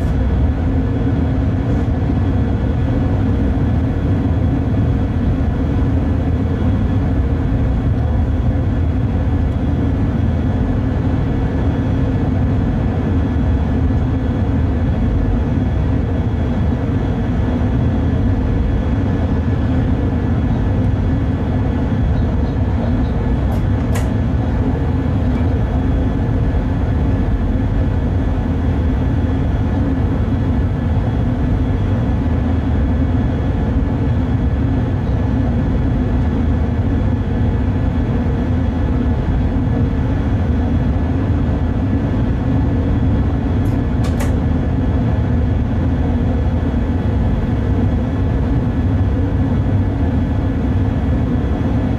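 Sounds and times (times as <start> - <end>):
locomotive running gear rumble: 0.0 - 51.9
sharp click: 23.5 - 24.2, 43.6 - 44.4.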